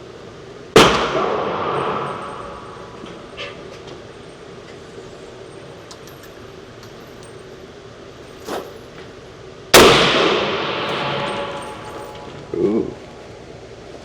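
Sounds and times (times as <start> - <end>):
rifle shot echoing: 0.8 - 3.6, 9.8 - 12.5.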